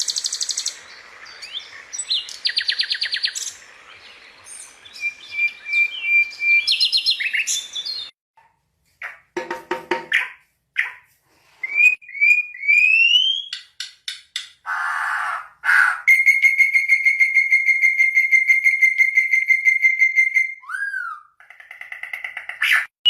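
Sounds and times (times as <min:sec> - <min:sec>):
bird whistling: 0:04.5 - 0:08.1, 0:11.6 - 0:13.7, 0:14.7 - 0:21.3.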